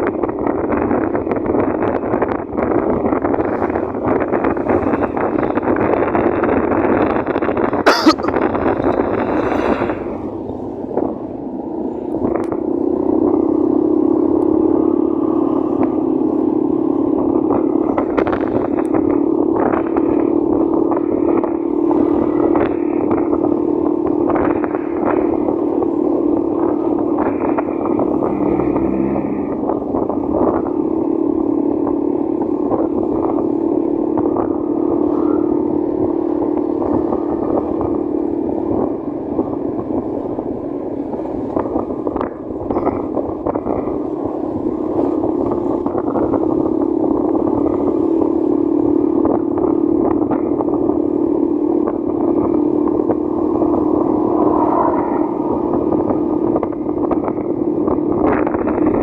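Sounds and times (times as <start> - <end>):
road and wind noise: 0.0 - 59.0
motorcycle engine running: 12.2 - 59.0.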